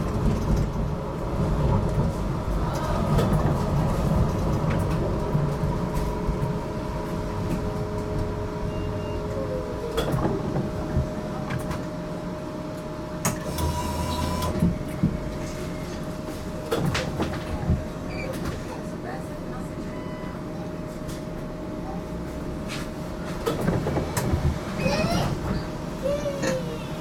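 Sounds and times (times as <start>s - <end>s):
tram electric whine: 0.0s - 16.8s.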